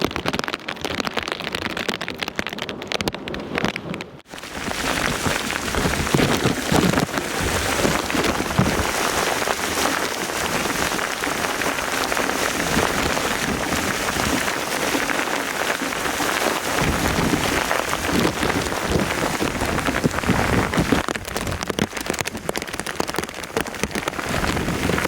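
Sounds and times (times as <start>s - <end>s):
heavy rain pouring: 4.2s - 25.0s.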